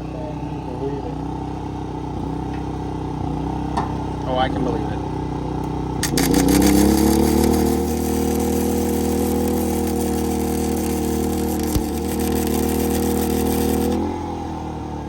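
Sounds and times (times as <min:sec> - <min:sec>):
truck engine at high idle: 0:00.0 - 0:15.0
welder arc crackling and hissing: 0:06.0 - 0:14.2.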